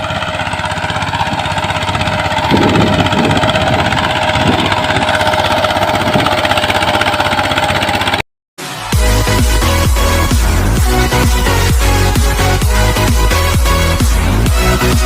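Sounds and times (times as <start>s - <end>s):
mini tractor engine chugging: 0.0s - 8.2s.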